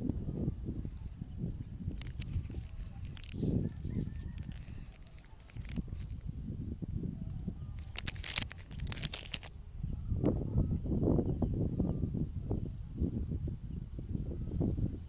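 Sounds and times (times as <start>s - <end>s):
high-pitched insect drone: 0.0s - 15.0s
pulsing insect chirp: 0.0s - 15.0s
wind buffeting microphone: 0.0s - 15.0s
light clicks: 2.0s - 3.6s.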